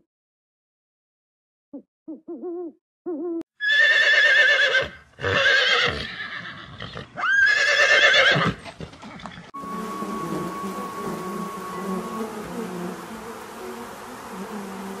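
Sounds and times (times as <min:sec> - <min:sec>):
horse whinnying: 0:03.6 - 0:09.5.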